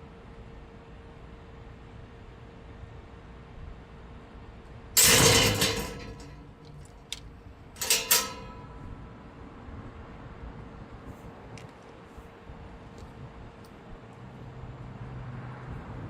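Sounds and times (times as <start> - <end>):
sharp ringing metal clanks: 5.0 - 7.2, 7.8 - 9.1
metal gate clanging shut: 5.0 - 9.0.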